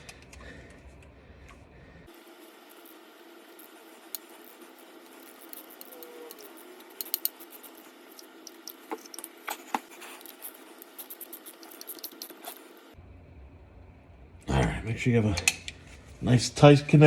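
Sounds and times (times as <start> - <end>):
low hum: 0.0 - 17.0
wrench clicking on metal: 5.5 - 7.8.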